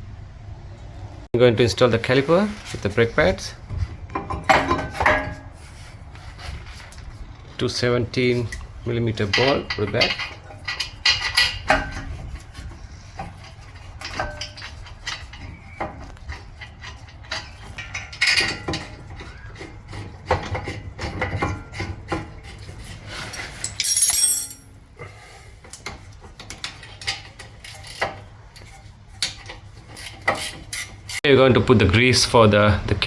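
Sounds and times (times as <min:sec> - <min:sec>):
metal tools clinking: 0:23.4 - 0:24.7.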